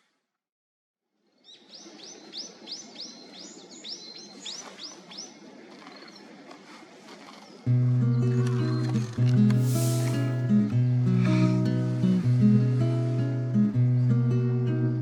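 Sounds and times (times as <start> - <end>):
quiet forest background: 0.0 - 0.4, 1.0 - 15.0
songbird whistled notes: 8.1 - 10.5.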